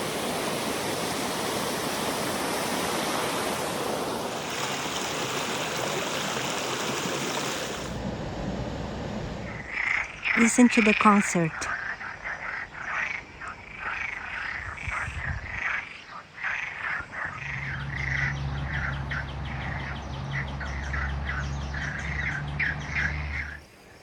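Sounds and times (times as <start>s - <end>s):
steady low hum: 7.9s - 11.7s, 17.0s - 23.8s
frogs croaking: 9.5s - 24.0s.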